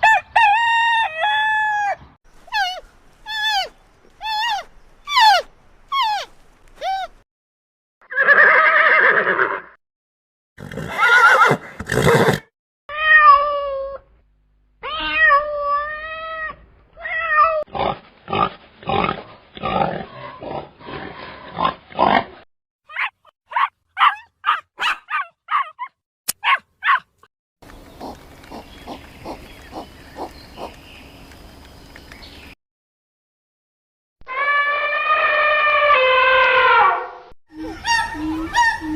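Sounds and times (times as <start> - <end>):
falling animal cries: 0.8 - 7.1, 34.2 - 38.9
wavering pitched animal calls: 2.5 - 7.1, 34.3 - 38.9
rough noisy animal calls: 27.7 - 31.8.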